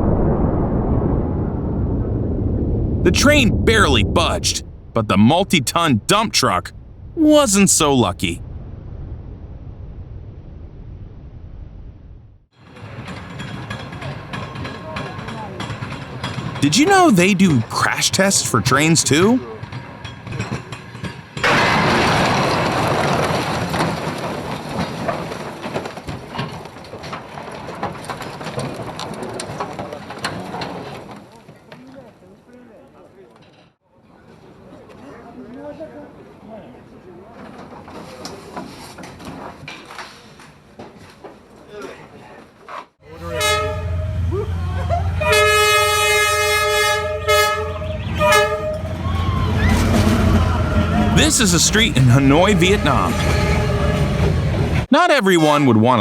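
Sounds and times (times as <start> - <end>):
rail vehicle crash: 20.0 - 31.0, 49.1 - 51.1
train horn: 43.2 - 51.2, 52.7 - 54.6.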